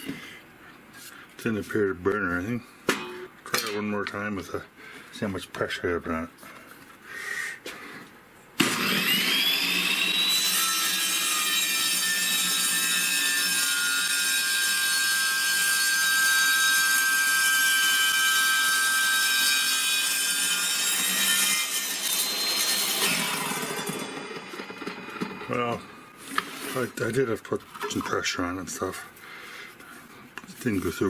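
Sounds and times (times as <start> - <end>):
table saw whining: 8.6 - 26.1
saw ripping through wood: 8.6 - 27.3.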